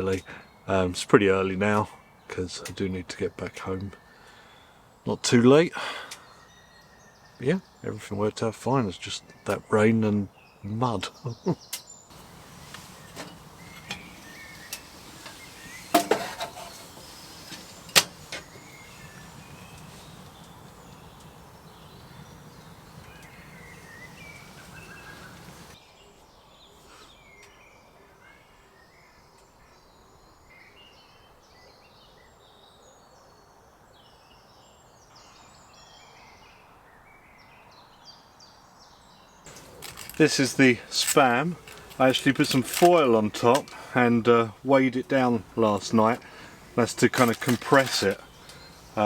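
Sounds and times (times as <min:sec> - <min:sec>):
outdoor background noise: 0:00.0 - 0:49.0
faint bird chirps: 0:10.3 - 0:33.5, 0:45.2 - 0:49.0.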